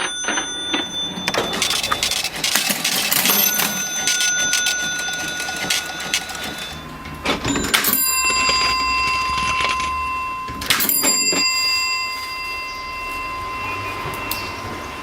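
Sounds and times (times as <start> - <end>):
cash register keys clunking: 0.0 - 10.0
cash register bell ringing: 0.0 - 14.6.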